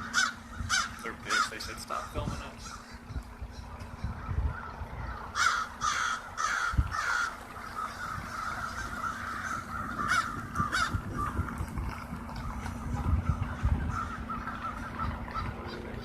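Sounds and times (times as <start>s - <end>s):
loud close crow caws: 0.0s - 3.0s, 5.1s - 11.4s, 13.6s - 15.5s
flock of crows cawing: 0.0s - 11.7s, 12.3s - 16.0s.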